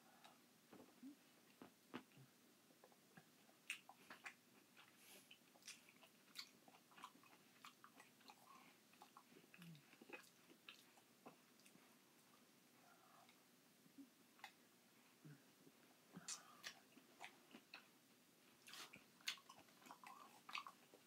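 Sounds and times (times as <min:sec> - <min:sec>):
chewing and mouth smacking: 0:02.8 - 0:11.9, 0:16.2 - 0:17.9, 0:18.5 - 0:21.0.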